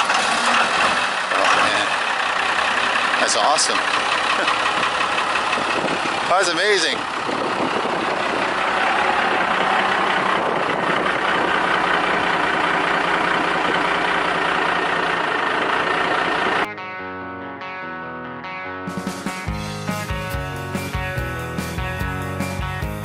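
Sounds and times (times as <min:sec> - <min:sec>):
diesel engine idling: 0:00.0 - 0:16.7
rock guitar music: 0:16.2 - 0:23.0.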